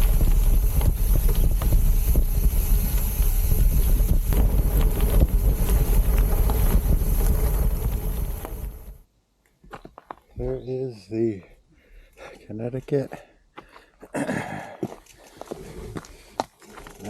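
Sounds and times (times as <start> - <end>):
bike rattling and knocking: 0.0 - 9.0
bike tyres rumbling: 0.0 - 9.0
wind buffeting microphone: 0.0 - 9.0.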